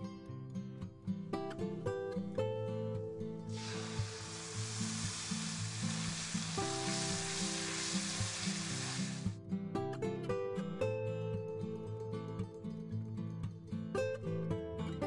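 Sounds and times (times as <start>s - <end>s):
acoustic guitar music: 0.0s - 15.0s
yogurt sizzling in hot oil: 3.5s - 9.4s.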